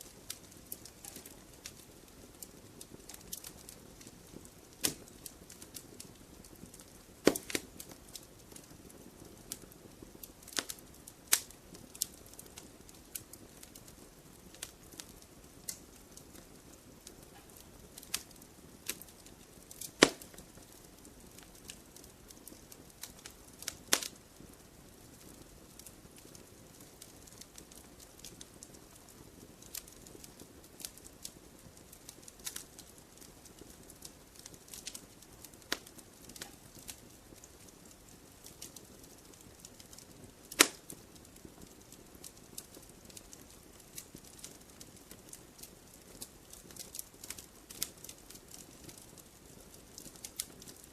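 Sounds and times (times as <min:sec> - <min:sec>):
soft rush of flame: 0:00.0 - 0:50.9
wood fire popping and snapping: 0:00.0 - 0:50.9.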